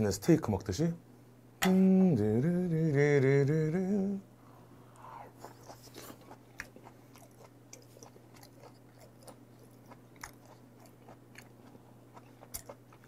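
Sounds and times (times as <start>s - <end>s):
low hum: 1.0s - 8.3s
wet chewing sounds: 5.4s - 13.0s.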